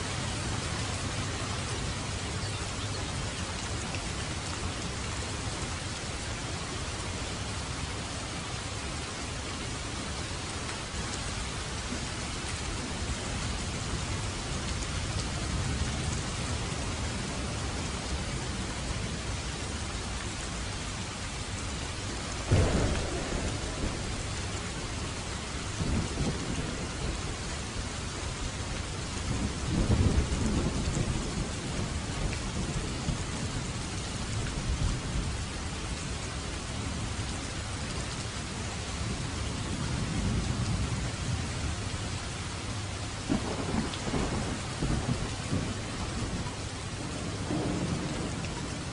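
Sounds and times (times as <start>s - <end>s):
heavy rain: 0.0s - 48.9s
thunder: 22.5s - 24.9s, 43.3s - 46.4s, 47.0s - 48.9s.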